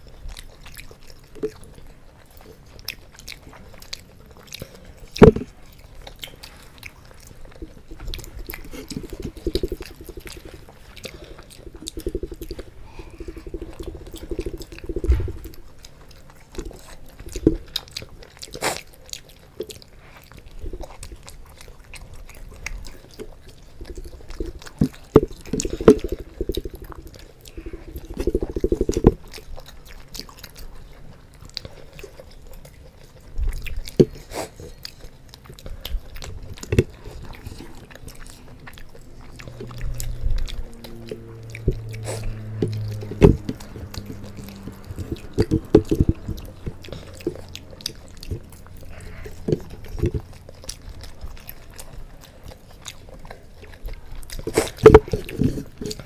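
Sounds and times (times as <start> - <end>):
people chewing and biting: 0.0 - 56.0
wet mouth smacks and clicks: 2.9 - 18.9, 23.8 - 30.6, 33.6 - 51.7, 52.8 - 56.0.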